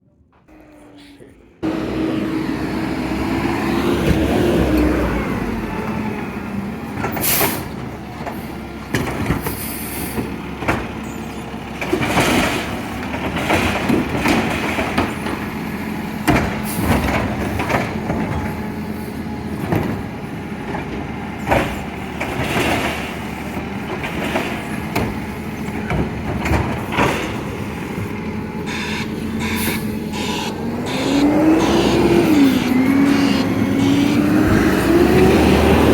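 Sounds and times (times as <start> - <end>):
garbage truck engine running: 0.3 - 35.9
knocks and clanks: 7.0 - 11.1, 11.7 - 15.5, 16.2 - 18.6, 19.6 - 28.1.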